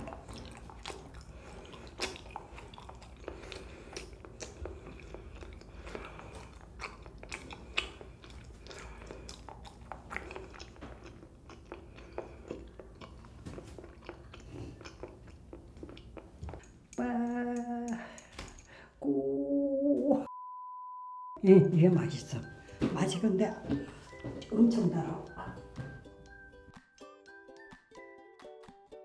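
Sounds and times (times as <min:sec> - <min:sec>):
wet mouth clicks and smacks: 0:00.0 - 0:18.8
person chewing jelly: 0:00.0 - 0:19.0.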